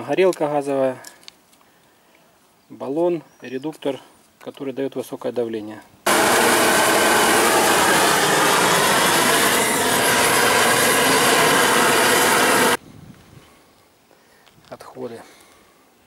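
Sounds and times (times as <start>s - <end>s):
gas torch roaring: 6.1s - 12.8s.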